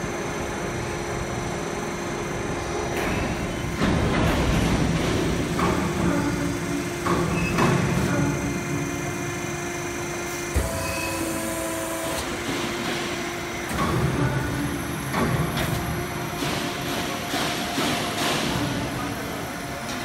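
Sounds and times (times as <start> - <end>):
machinery working noise: 0.0 - 20.0
machine hum with held tones: 6.0 - 17.9.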